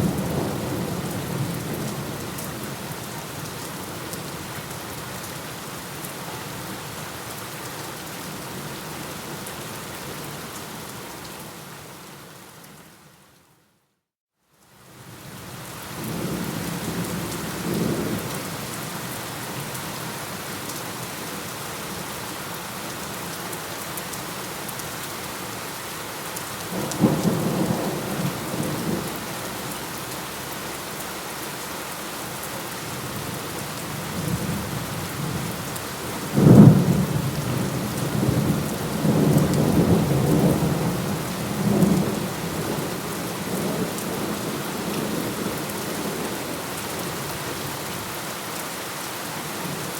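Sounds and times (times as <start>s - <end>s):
heavy rain: 0.0s - 13.0s, 14.7s - 49.9s
thunder rumbling and cracking: 36.3s - 46.3s.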